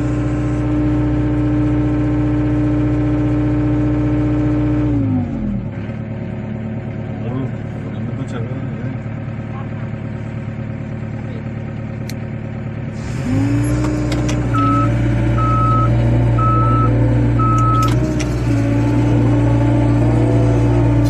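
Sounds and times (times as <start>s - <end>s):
excavator engine running: 0.0s - 21.0s
travel alarm beeps: 14.5s - 18.0s.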